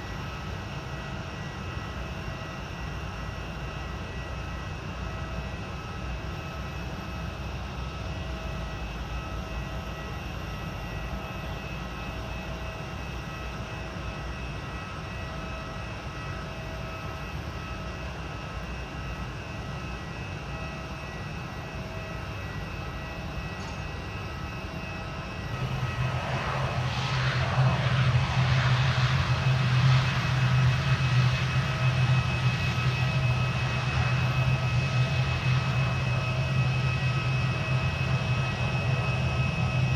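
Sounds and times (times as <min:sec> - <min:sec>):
aircraft engines rumbling: 0:00.0 - 0:39.9.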